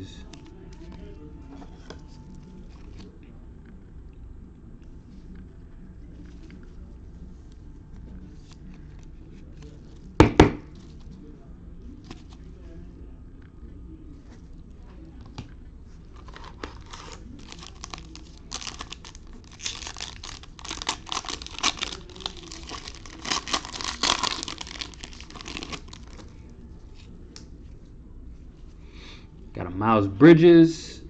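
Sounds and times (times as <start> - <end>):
card pack wrapper crinkling: 16.1 - 26.3.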